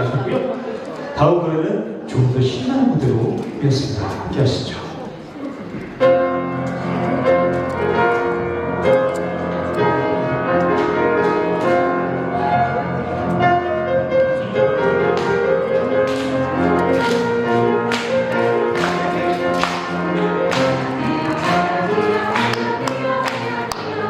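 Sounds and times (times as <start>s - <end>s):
piano: 5.2s - 24.0s.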